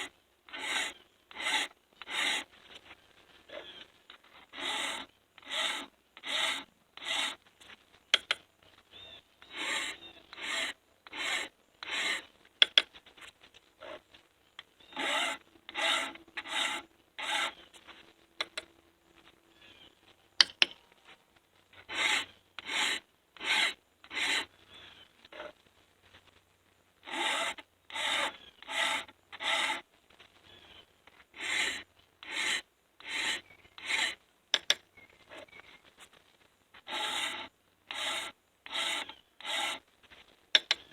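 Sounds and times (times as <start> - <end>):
hand file rasping on chain: 0.0 - 2.5, 4.4 - 7.4, 9.4 - 12.9, 14.9 - 17.7, 21.8 - 24.6, 25.3 - 25.5, 27.0 - 29.8, 31.3 - 35.5, 36.8 - 39.8.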